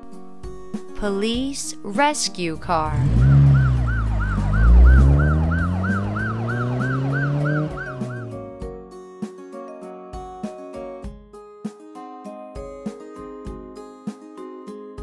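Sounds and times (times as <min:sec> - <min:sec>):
music: 0:00.0 - 0:15.0
low engine drone: 0:02.8 - 0:08.4
police siren wailing: 0:02.9 - 0:08.6.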